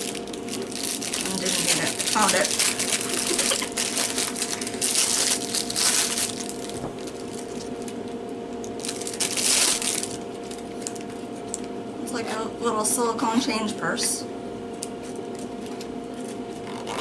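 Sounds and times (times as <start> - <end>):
packaging crinkling: 0.0 - 11.7.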